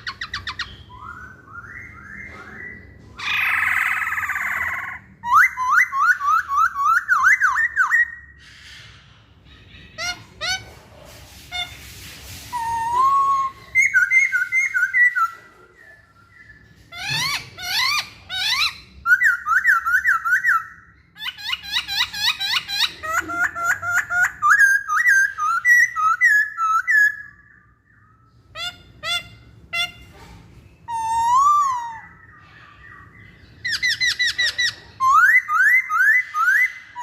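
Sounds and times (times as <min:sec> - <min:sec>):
bird singing whistled phrases: 0:12.5 - 0:20.8, 0:30.8 - 0:33.1, 0:33.7 - 0:37.0.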